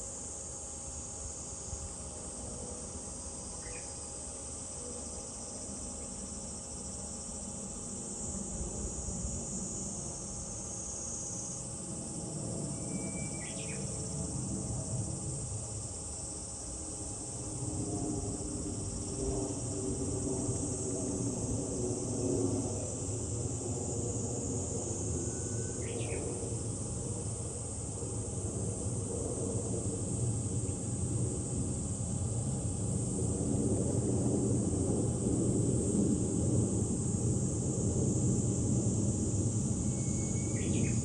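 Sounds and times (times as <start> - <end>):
cicadas chorus: 0.0 - 41.0.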